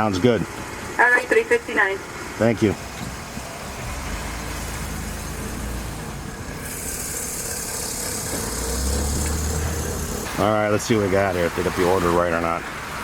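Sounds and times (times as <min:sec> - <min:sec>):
car engine idling: 0:00.0 - 0:13.0
steady hiss: 0:02.8 - 0:11.9.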